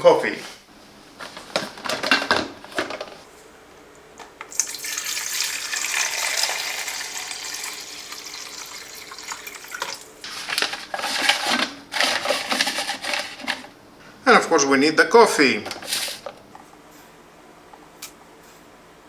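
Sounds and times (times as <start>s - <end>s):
water running: 4.5s - 13.7s.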